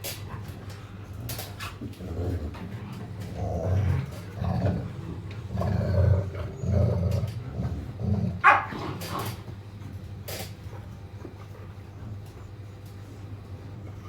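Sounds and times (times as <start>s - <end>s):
dogs growling: 0.1s - 9.6s
dog yelp: 8.4s - 8.8s.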